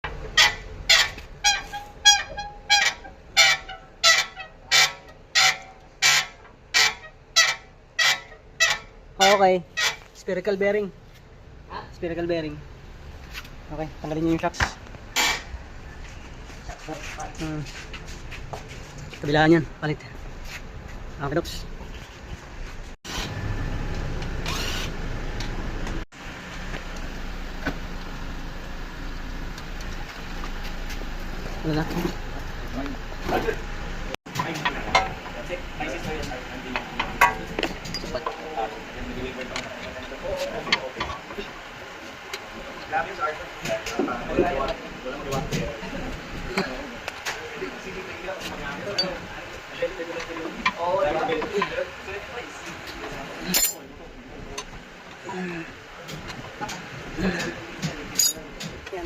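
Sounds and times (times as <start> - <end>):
vehicle rumble: 0.0 - 59.0
shock absorber squeaking: 0.1 - 10.3, 15.1 - 17.6.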